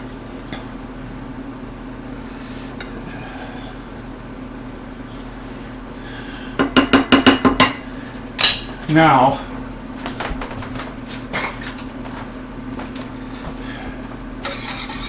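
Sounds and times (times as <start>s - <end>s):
low kitchen hum: 0.0s - 15.0s
utensil clinking against bowl: 8.4s - 8.8s, 14.4s - 15.0s.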